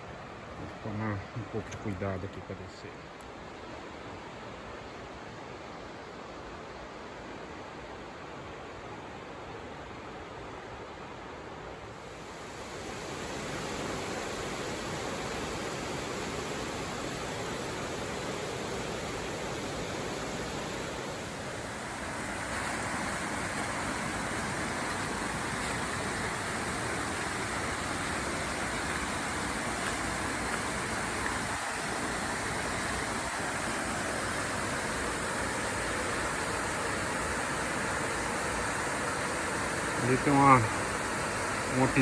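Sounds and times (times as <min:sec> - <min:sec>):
waterfall rushing: 0:12.0 - 0:42.0.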